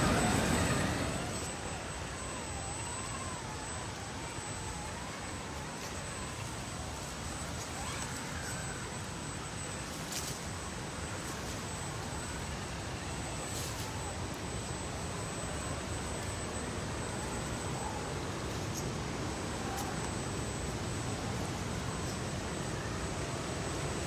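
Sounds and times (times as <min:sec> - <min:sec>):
electric motor and gears whining: 0:00.0 - 0:24.0.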